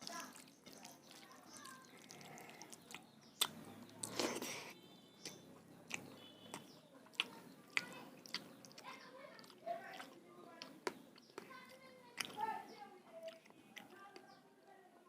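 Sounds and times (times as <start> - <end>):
person chewing food: 0.0 - 14.3
sharp mouth clicks: 1.9 - 4.6, 5.2 - 8.8.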